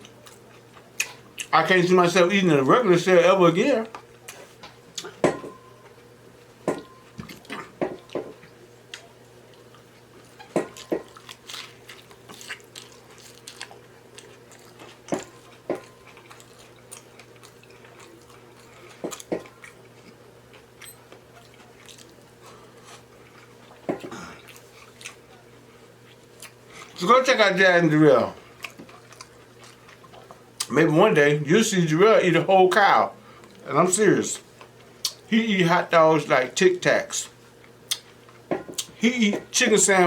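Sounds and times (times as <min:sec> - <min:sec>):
faint steady hum: 0:00.0 - 0:40.0
biting and chewing food: 0:06.7 - 0:27.1, 0:27.9 - 0:30.8, 0:37.2 - 0:39.0.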